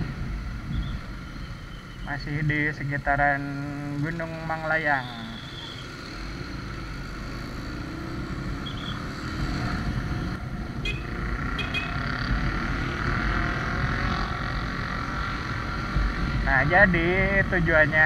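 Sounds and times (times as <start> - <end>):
wind and road noise: 0.0 - 18.0.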